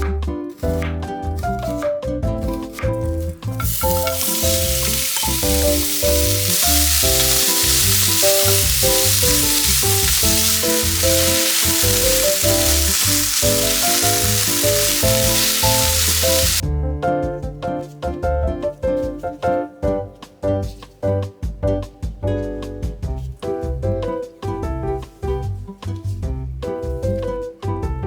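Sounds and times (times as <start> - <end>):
background music: 0.0 - 28.0
food sizzling in a pan: 3.5 - 16.6.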